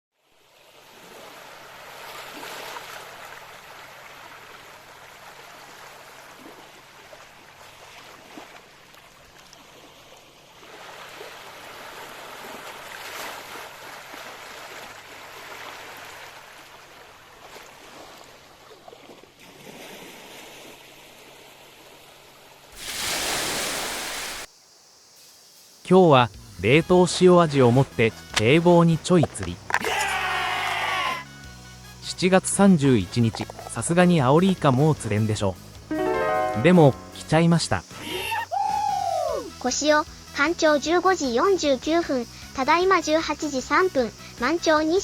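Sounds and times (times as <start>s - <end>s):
sea water washing against breakwater: 22.7s - 24.5s.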